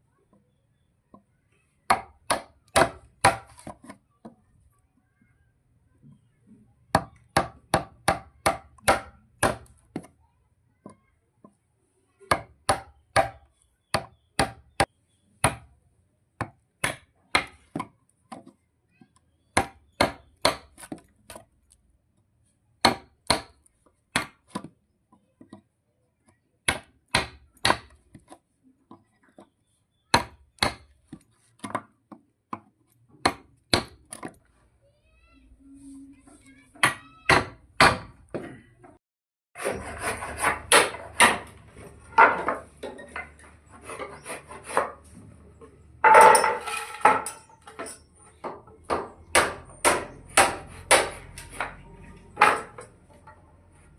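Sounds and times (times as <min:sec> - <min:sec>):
hammer striking wood: 0:01.9 - 0:03.8, 0:07.0 - 0:10.1, 0:12.3 - 0:15.7, 0:19.6 - 0:21.0, 0:22.8 - 0:24.7, 0:26.6 - 0:28.0, 0:30.1 - 0:34.4, 0:36.8 - 0:38.4, 0:40.4 - 0:41.6, 0:48.4 - 0:51.8, 0:52.4 - 0:52.9.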